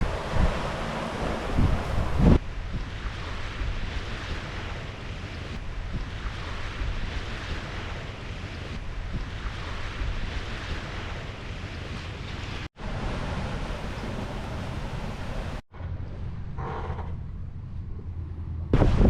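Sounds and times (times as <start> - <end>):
sea water rushing: 0.0 - 15.6
wind buffeting microphone: 0.0 - 16.6.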